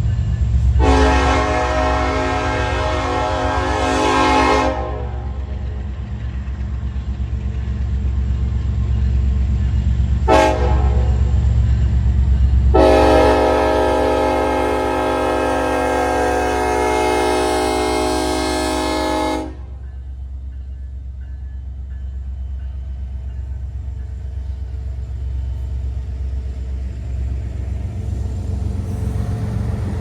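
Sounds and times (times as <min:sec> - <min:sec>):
train low rumble: 0:00.0 - 0:30.0
locomotive air horn blasts: 0:00.8 - 0:05.4, 0:10.3 - 0:11.3, 0:12.7 - 0:19.8.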